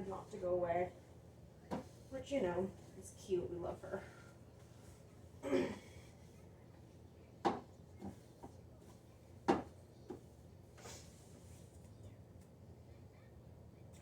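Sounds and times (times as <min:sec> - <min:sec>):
person clearing throat: 0:05.4 - 0:05.9.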